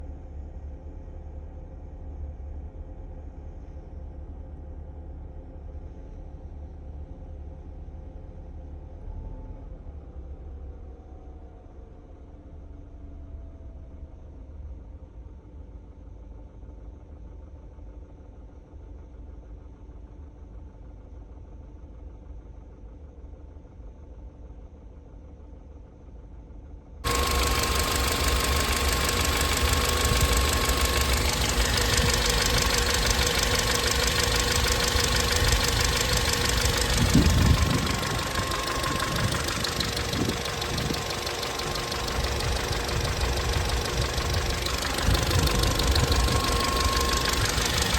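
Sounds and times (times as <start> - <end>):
car low rumble: 27.1 - 47.9
faint steady tones: 27.1 - 47.9
thin steady whine: 27.1 - 47.9.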